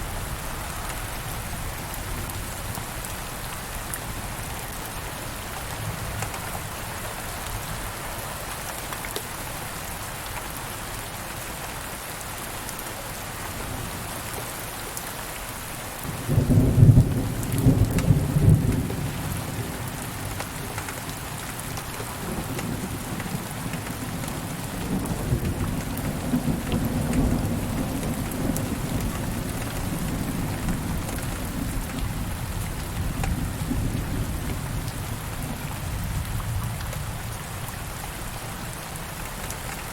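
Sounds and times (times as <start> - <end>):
steady rain falling: 0.0 - 39.9
thunder clap and rumble: 16.1 - 20.4, 22.2 - 37.2.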